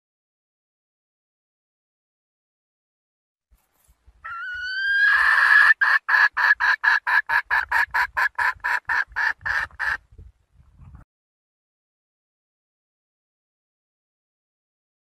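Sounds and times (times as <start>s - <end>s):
hen calling: 4.2s - 10.0s
hen clucking: 4.2s - 10.0s.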